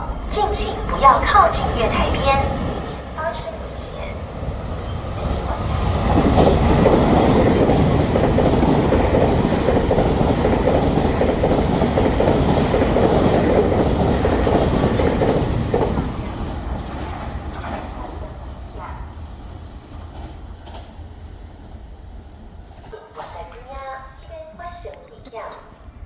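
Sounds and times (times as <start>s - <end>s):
train wheels clattering over rails: 4.3s - 23.7s.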